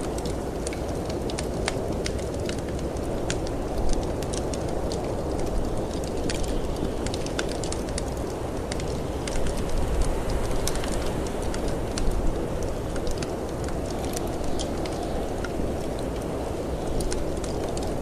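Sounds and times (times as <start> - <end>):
wood fire crackling and popping: 0.0 - 18.0.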